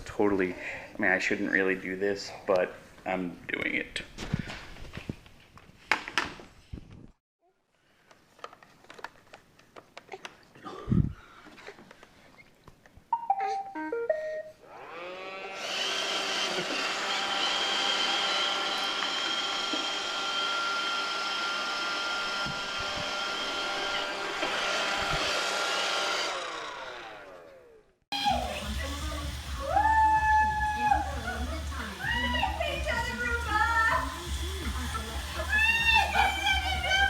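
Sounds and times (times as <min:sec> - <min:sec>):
vacuum motor whine: 0:14.6 - 0:37.0.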